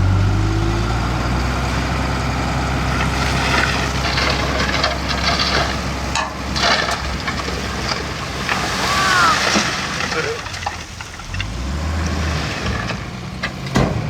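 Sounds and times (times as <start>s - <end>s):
rattling: 3.0s - 11.7s
hissing: 8.6s - 11.0s.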